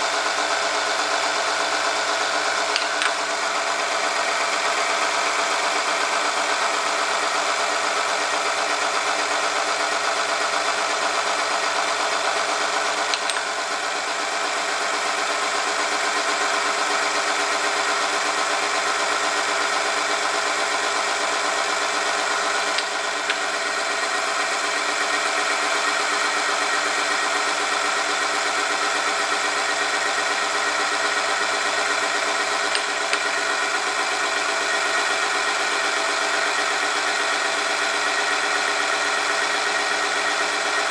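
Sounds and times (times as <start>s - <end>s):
test machine humming: 21.0s - 27.7s, 28.4s - 35.8s.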